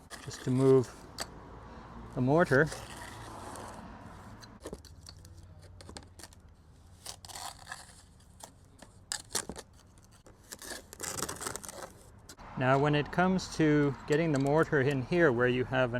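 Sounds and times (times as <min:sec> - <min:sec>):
steel tool scraping mortar: 0:00.0 - 0:01.3, 0:02.3 - 0:12.1.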